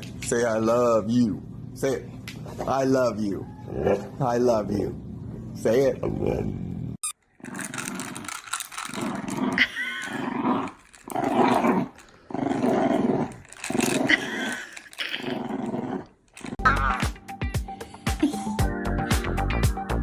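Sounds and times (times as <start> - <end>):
dog growling: 6.0 - 16.7.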